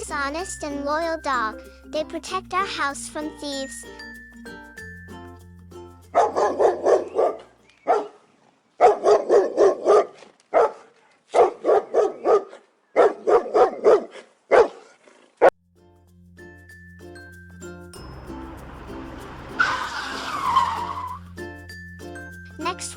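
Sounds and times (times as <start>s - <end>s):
dog barking: 6.2s - 8.2s, 8.8s - 15.5s.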